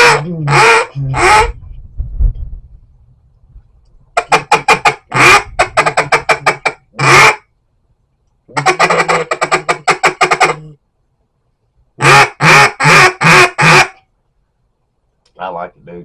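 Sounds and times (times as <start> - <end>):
duck call quacks: 0.0 - 1.6, 4.2 - 7.5, 8.5 - 10.8, 12.0 - 14.0.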